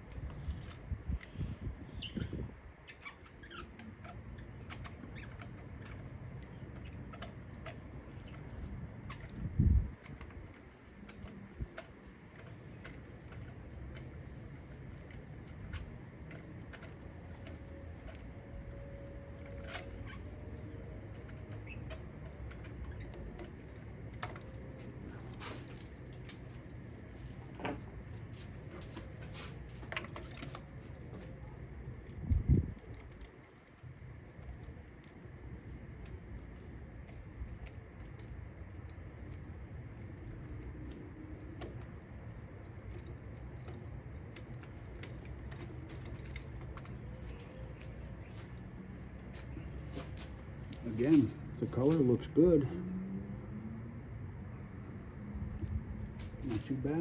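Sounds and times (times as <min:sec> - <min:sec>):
steady low hum: 0:00.0 - 0:57.0
metallic clinks of tools: 0:10.0 - 0:27.9.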